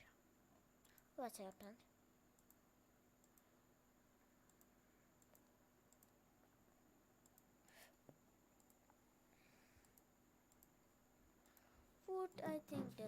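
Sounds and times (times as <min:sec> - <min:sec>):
faint room hiss: 0:00.0 - 0:13.0
computer mouse clicks: 0:02.4 - 0:02.6, 0:03.2 - 0:03.5, 0:04.5 - 0:06.2, 0:07.2 - 0:07.5, 0:08.6 - 0:09.0, 0:09.8 - 0:10.8.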